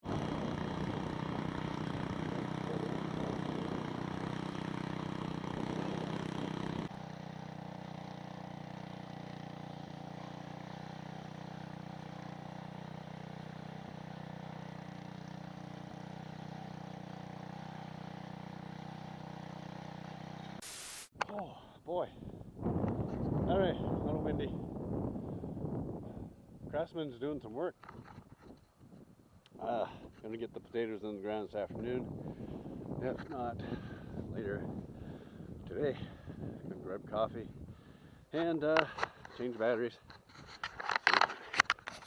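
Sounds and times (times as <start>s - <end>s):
rototiller engine running: 0.0s - 21.1s.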